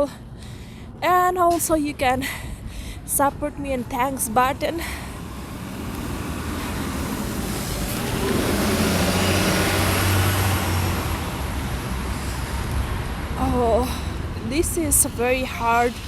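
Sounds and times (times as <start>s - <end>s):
vehicle driving past: 5.0s - 13.4s.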